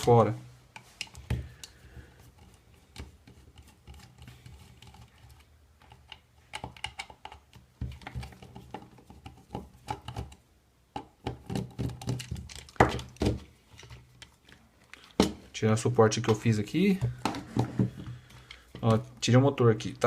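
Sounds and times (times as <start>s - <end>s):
plastic and metal parts clicking: 2.4s - 10.4s, 11.0s - 15.4s.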